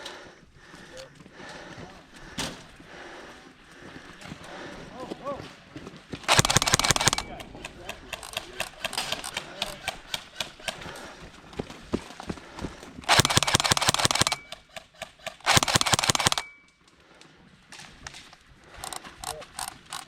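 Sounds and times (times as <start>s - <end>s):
airsoft rifle firing bursts: 6.3s - 11.0s, 13.0s - 16.6s.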